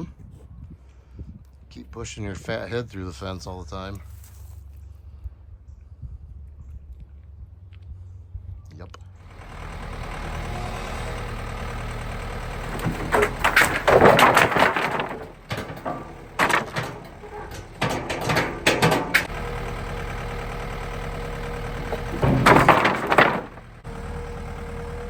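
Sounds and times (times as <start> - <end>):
tractor engine idling: 9.2 - 25.0
wood clattering and knocking: 10.3 - 19.8, 21.8 - 23.8.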